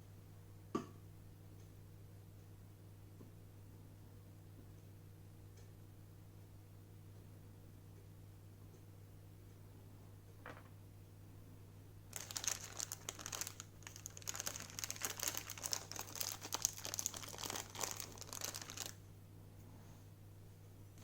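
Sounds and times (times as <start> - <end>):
plastic packaging crinkling: 12.1 - 19.0.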